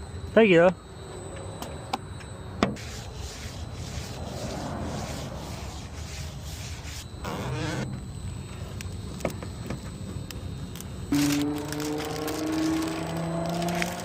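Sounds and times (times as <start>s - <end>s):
tool scraping window glass: 2.8s - 7.9s.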